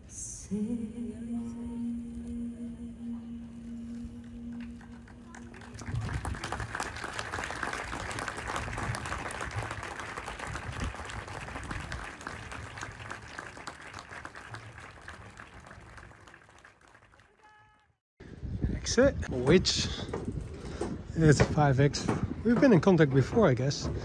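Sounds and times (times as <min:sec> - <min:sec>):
crowd applauding: 0:04.8 - 0:18.0.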